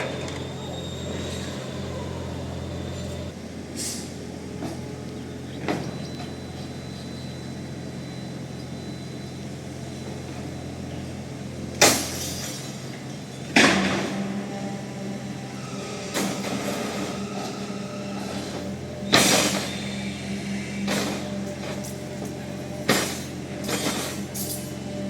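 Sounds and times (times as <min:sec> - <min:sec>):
diesel engine running: 0:00.0 - 0:25.0
short sharp work noises: 0:13.6 - 0:24.8.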